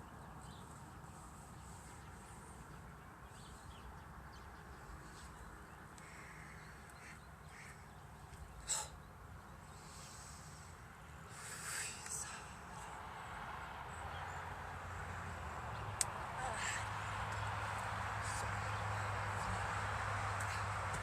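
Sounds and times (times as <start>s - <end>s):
faint outdoor background: 0.0s - 21.0s
faint short bird calls: 6.0s - 9.1s.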